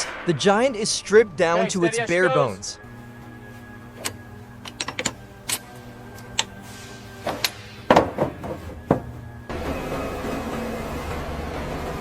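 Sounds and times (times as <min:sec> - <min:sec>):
steady low hum: 0:00.0 - 0:09.6
noisy rumble: 0:00.0 - 0:10.0
metal clanks and clicks: 0:04.0 - 0:06.6, 0:07.2 - 0:09.2.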